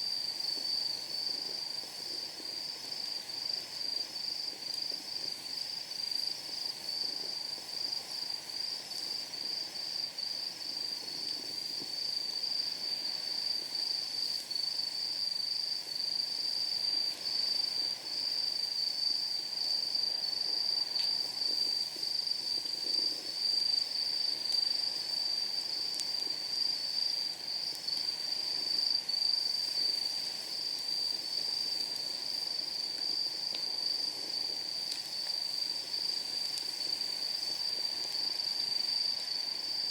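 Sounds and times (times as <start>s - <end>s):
night insects trilling: 0.0s - 39.9s
wood fire burning: 0.2s - 9.9s, 10.5s - 39.9s
burning wood popping: 33.0s - 37.8s.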